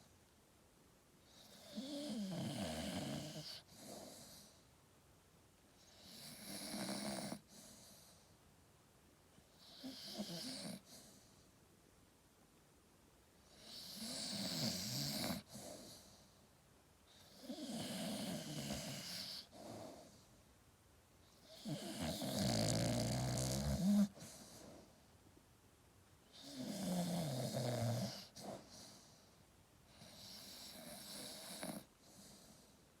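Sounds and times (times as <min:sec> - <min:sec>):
dog snoring: 0:01.2 - 0:04.7, 0:05.8 - 0:08.4, 0:09.4 - 0:11.4, 0:13.4 - 0:16.4, 0:17.1 - 0:20.4, 0:21.3 - 0:24.9, 0:26.3 - 0:29.3, 0:29.9 - 0:32.8.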